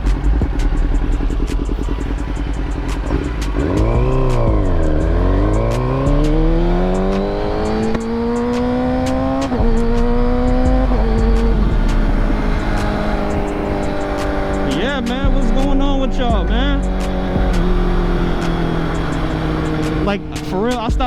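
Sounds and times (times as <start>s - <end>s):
motorcycle engine revving: 0.0s - 21.0s
motorcycle gear upshifts: 1.4s - 15.8s, 16.8s - 20.9s.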